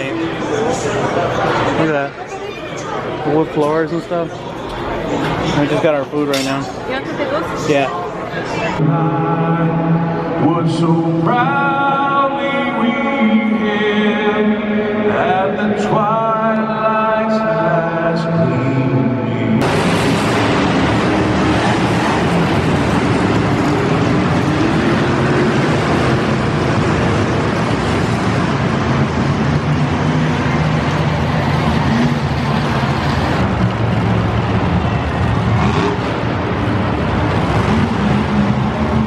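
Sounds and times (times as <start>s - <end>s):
monster truck engines running: 19.6s - 39.0s.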